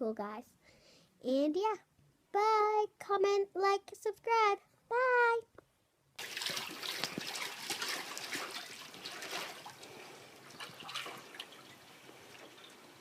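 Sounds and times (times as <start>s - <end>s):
water drips: 6.2s - 13.0s
water splashing and trickling: 6.2s - 13.0s.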